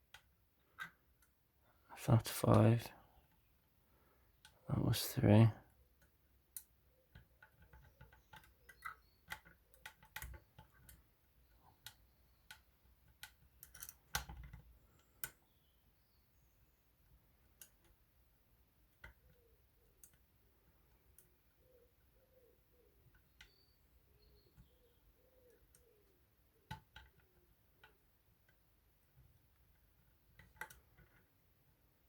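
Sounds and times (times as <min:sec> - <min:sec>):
lock pick clicking in lock: 0:11.8 - 0:15.4.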